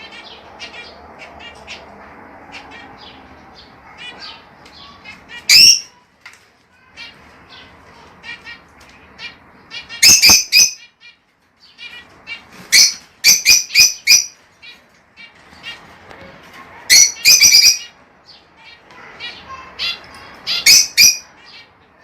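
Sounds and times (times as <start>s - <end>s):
birds chirping: 0.0s - 22.0s
shrill bird calls: 2.5s - 6.0s, 9.2s - 15.7s, 16.9s - 21.7s.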